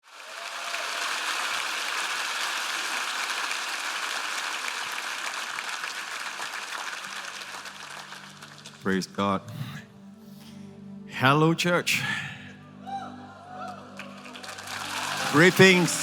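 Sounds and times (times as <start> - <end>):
congregation applauding: 0.0 - 9.2, 13.5 - 16.0.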